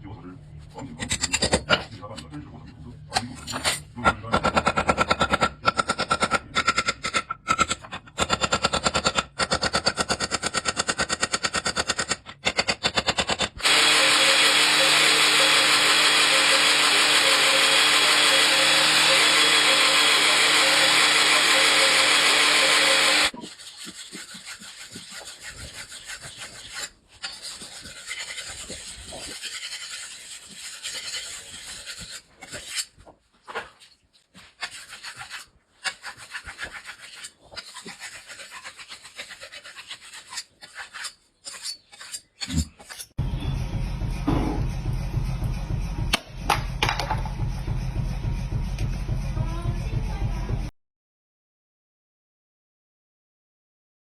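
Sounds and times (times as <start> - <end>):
filing strokes on blade: 4.6 - 33.1, 33.8 - 43.2
grinder motor running: 13.3 - 23.4.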